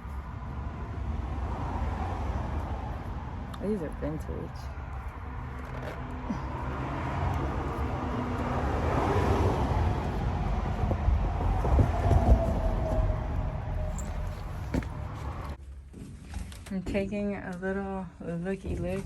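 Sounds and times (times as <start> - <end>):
vehicle passing by: 0.0 - 15.6.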